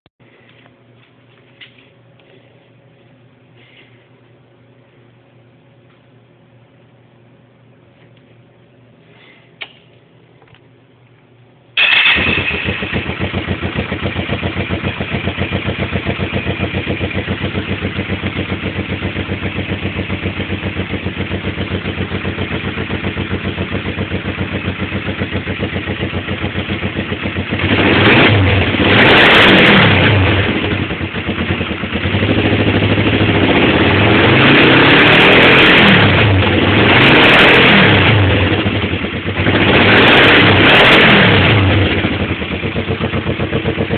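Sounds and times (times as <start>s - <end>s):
motorcycle engine idling and revving: 11.8s - 43.9s.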